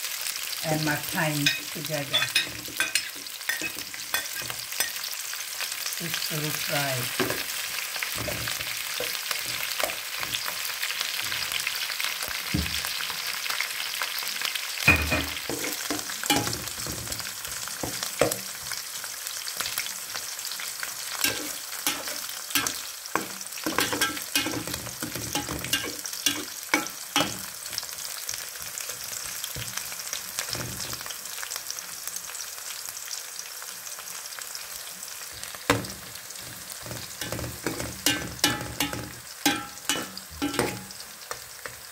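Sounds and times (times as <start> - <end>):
food sizzling in hot oil: 0.0 - 41.9
metal ladle scraping a pot: 21.2 - 27.3, 36.4 - 40.9.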